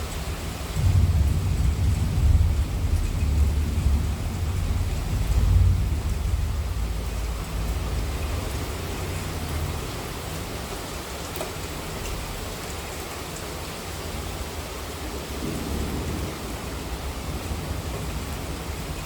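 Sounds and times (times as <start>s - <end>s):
heavy rain falling: 0.0s - 19.0s
low thunder rumble: 0.4s - 9.7s.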